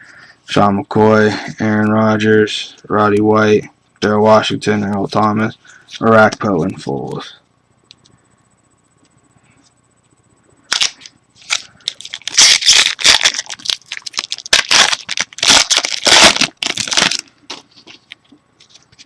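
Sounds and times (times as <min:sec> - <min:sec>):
wrapper tearing and crinkling: 0:10.7 - 0:18.2.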